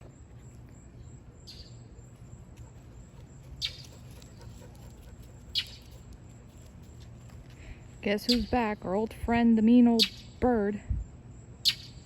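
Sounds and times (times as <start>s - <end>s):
bird calling: 3.0s - 6.0s.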